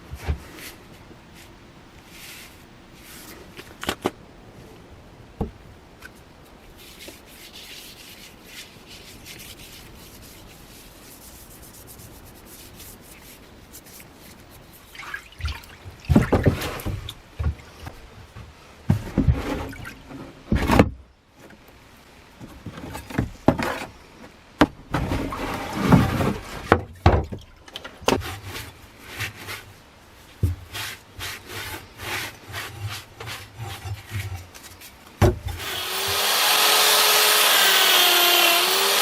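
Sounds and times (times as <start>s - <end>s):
knocks and scrapes: 5.4s - 15.0s, 16.0s - 21.6s, 22.4s - 36.4s
hand rubbing on workpiece: 6.8s - 15.0s.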